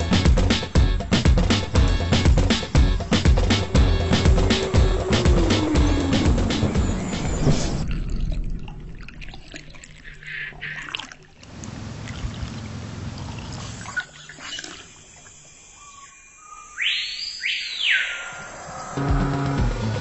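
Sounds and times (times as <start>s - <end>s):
low rumble: 3.0s - 10.1s
water trickling and splashing: 6.6s - 15.8s.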